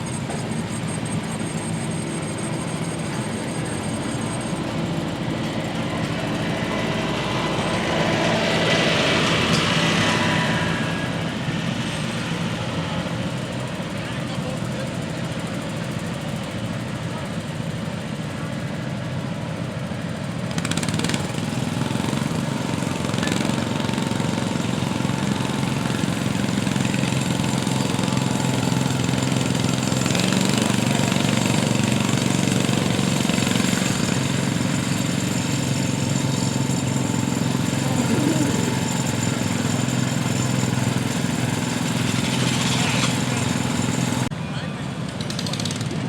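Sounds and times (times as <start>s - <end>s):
garden tractor engine running: 20.5s - 44.6s.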